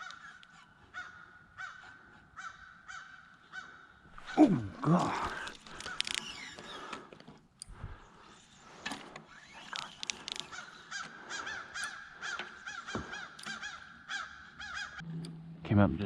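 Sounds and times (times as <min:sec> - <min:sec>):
crows cawing: 0:00.0 - 0:06.9, 0:10.2 - 0:15.0
sharp clicks: 0:05.2 - 0:07.7, 0:08.9 - 0:11.1.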